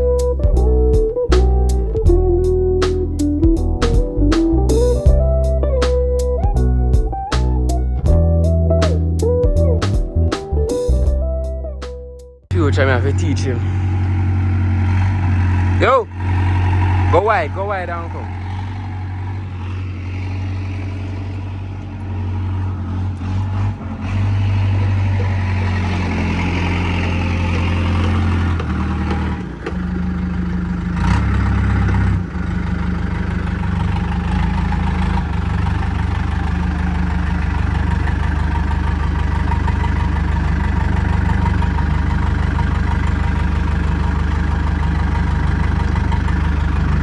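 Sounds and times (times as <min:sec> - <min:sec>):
diesel engine running: 0:12.5 - 0:47.0.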